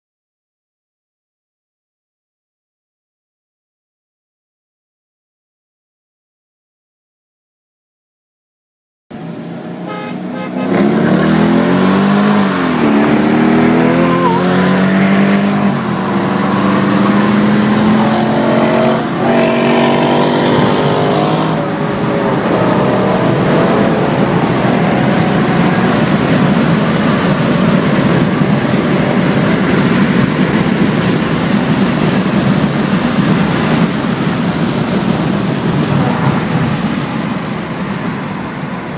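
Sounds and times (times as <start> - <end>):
car engine accelerating: 9.1 - 38.9
wind and road noise: 9.1 - 38.9.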